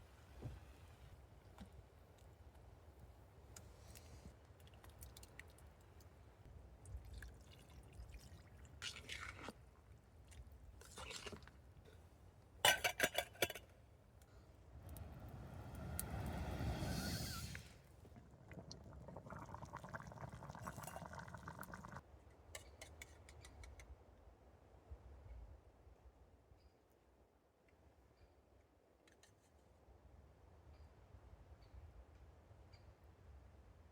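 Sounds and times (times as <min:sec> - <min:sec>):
liquid pouring: 0:06.9 - 0:09.6, 0:17.3 - 0:22.0.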